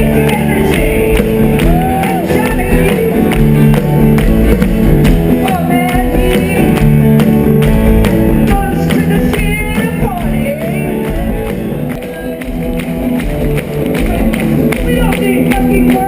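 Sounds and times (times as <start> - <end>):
person singing: 0.0 - 3.9, 5.3 - 7.1, 8.4 - 12.8, 13.9 - 16.0
loud rock music: 0.0 - 16.0.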